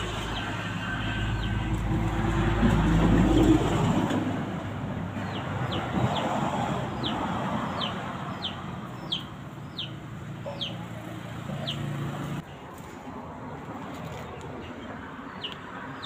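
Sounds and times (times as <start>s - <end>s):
bird peeping: 7.0s - 10.8s.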